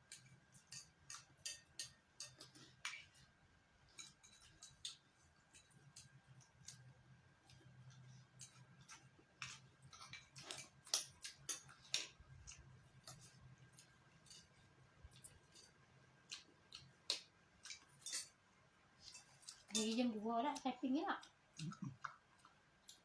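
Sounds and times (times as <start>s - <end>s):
cutlery clicking on dishes: 0.0s - 3.3s, 3.9s - 6.9s, 7.9s - 18.4s, 19.0s - 20.0s
chewing: 0.0s - 18.4s, 19.0s - 20.6s, 21.2s - 23.0s.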